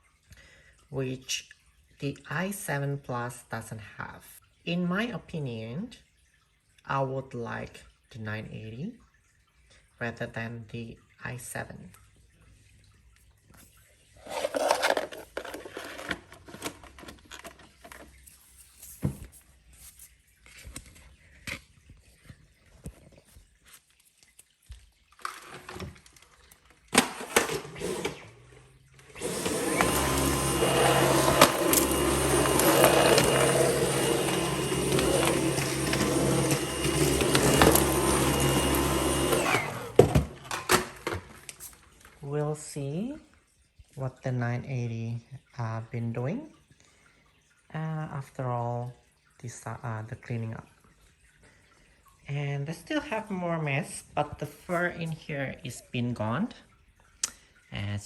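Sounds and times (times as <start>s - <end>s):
vacuum cleaner motor running: 27.2s - 40.6s.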